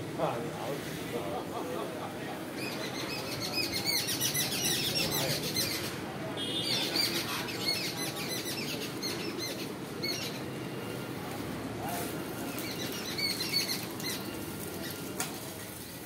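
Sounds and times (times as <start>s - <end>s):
low steady background noise: 0.0s - 16.0s
small birds chirping: 2.5s - 6.0s, 6.7s - 10.6s, 12.4s - 15.2s.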